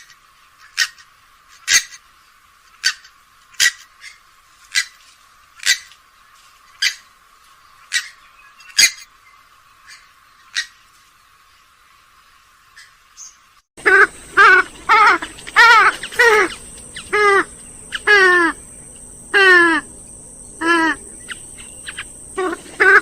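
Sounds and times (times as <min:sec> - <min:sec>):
swamphen calls: 0:13.8 - 0:23.0.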